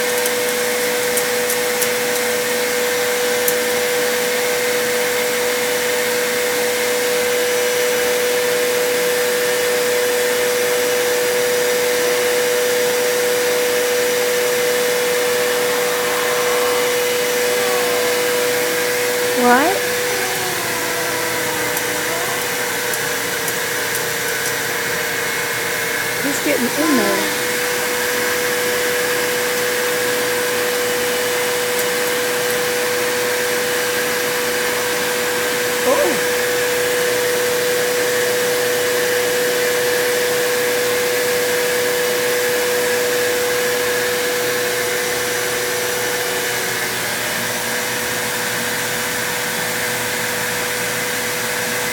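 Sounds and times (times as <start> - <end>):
vacuum cleaner running: 0.0 - 51.9
sliding voice call: 26.2 - 27.6.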